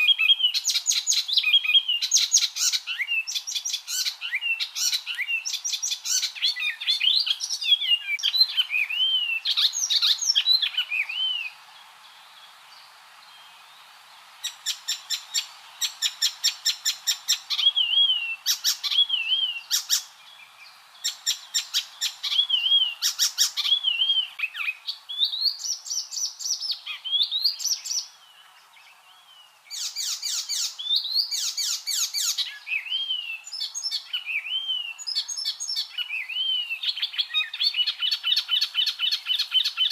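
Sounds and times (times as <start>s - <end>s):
warbler singing: 0.0s - 39.9s.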